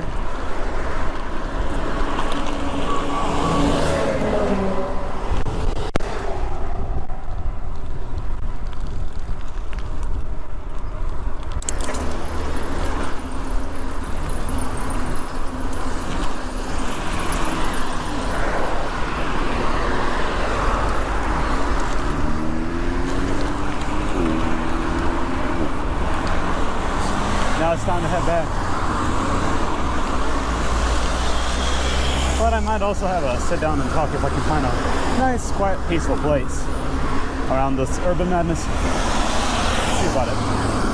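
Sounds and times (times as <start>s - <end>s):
road traffic passing: 0.0s - 40.9s
vehicle engine speeding up: 0.7s - 7.5s, 12.0s - 40.9s.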